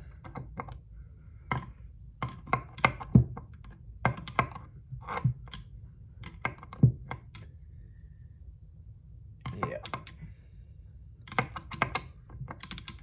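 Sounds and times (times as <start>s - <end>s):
metal parts clicking and tapping: 11.2s - 13.0s.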